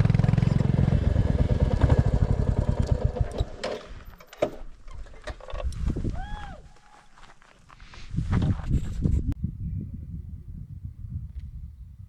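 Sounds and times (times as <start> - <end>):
motorcycle engine shutting off: 0.0 - 4.2.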